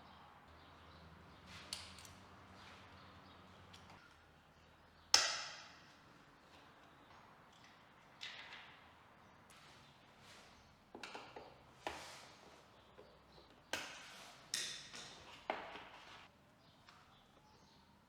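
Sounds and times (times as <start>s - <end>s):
tools knocking and clicking: 11.0s - 11.6s.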